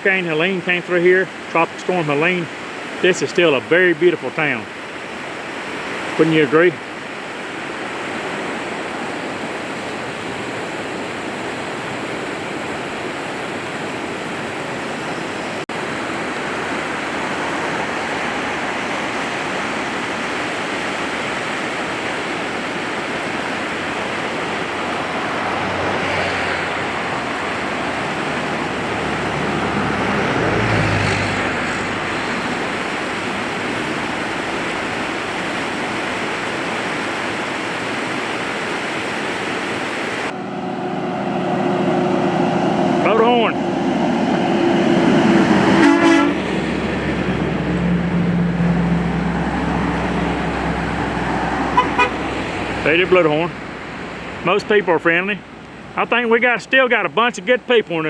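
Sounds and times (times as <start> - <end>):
river rushing: 0.0 - 58.0
heavy vehicle passing: 23.4 - 36.3, 40.2 - 56.2
vehicle passing: 23.9 - 36.2, 40.3 - 56.1.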